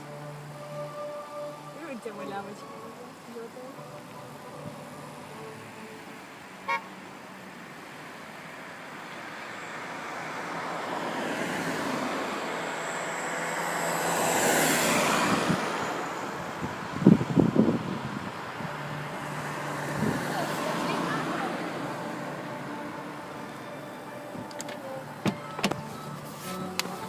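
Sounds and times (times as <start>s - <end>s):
vehicle passing by: 8.5s - 27.0s.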